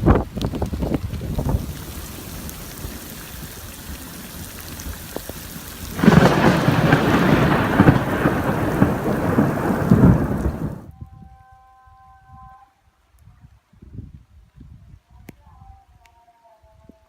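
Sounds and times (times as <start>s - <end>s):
rain falling: 0.0s - 10.9s
loud thunder rumbling: 5.9s - 10.9s.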